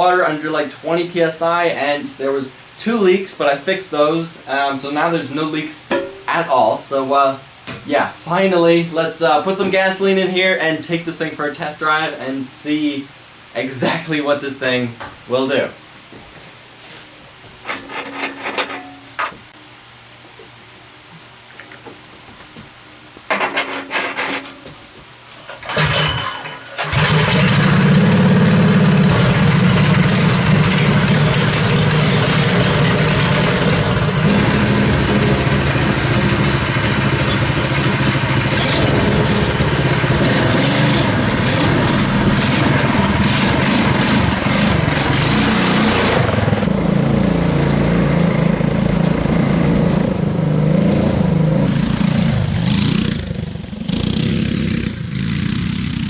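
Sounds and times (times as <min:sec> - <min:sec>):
go-kart engine starting and revving: 0:25.3 - 0:56.0.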